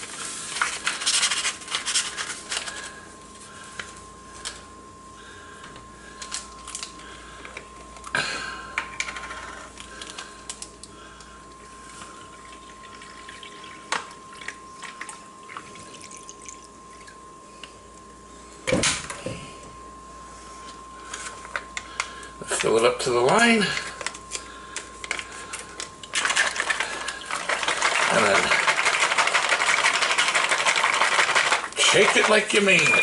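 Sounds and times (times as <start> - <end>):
plastic packets crinkling: 24.0 - 33.0
faint steady high tone: 31.8 - 33.0.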